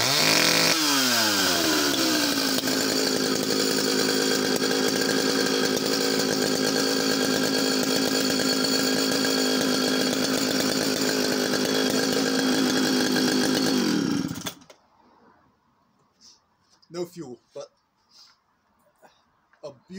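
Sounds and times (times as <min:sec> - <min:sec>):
chainsaw engine running: 0:00.0 - 0:14.7.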